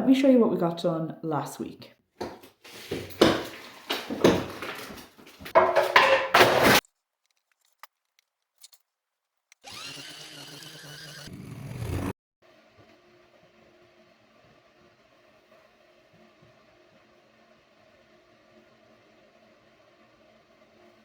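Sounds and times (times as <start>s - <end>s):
tool knocking and scraping masonry: 2.2s - 6.8s
machine whirring: 9.6s - 12.1s.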